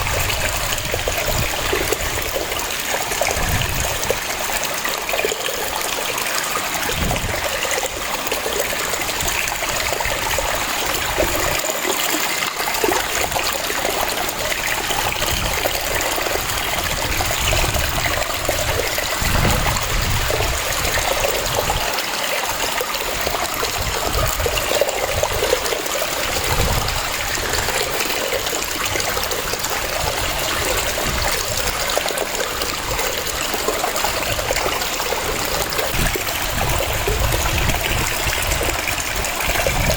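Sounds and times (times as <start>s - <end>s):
waterfall water cascading: 0.0s - 39.9s.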